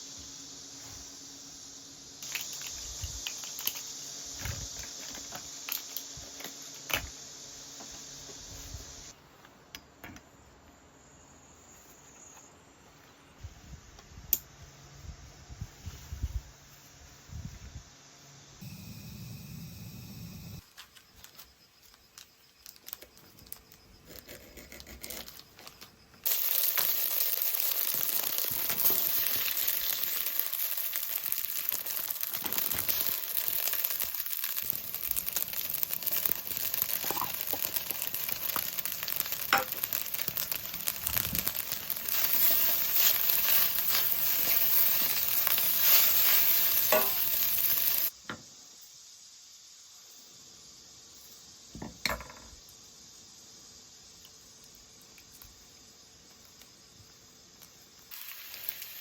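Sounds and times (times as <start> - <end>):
food sizzling and crackling: 0.0 - 9.2, 25.1 - 48.2, 56.3 - 59.0.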